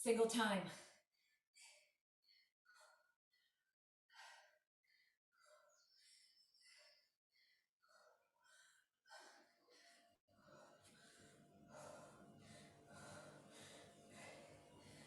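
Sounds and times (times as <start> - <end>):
person breathing heavily: 4.2 - 15.0.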